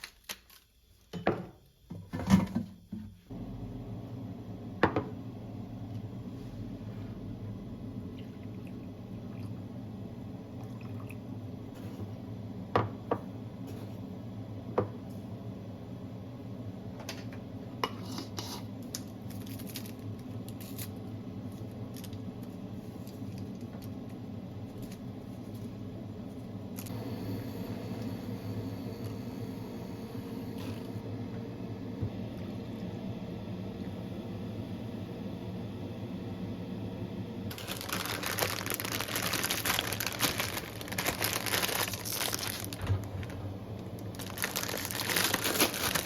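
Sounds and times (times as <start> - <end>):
steady low hum: 3.3 - 46.0.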